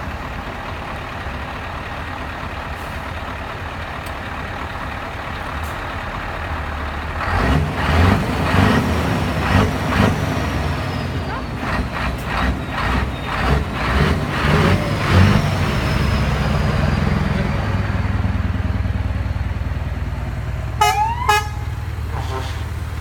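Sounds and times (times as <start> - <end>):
truck diesel engine droning: 0.0 - 23.0
truck horn blasts: 20.8 - 22.7.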